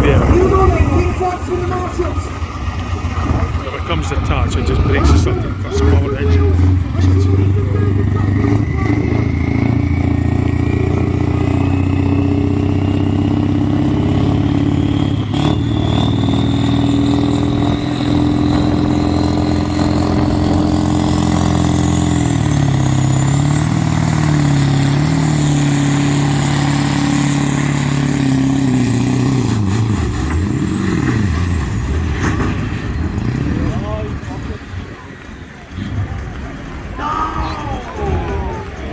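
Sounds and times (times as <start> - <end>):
thin whine climbing in pitch: 0.0 - 32.6
tractor engine running loud: 0.0 - 36.9.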